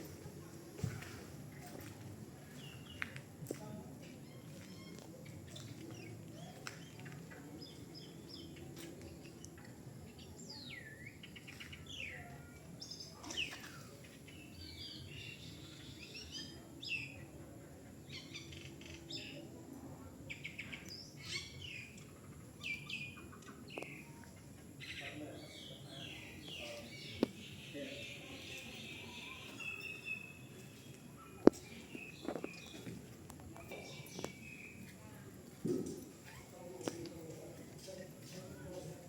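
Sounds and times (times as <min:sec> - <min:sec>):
birds calling: 0:20.3 - 0:34.9.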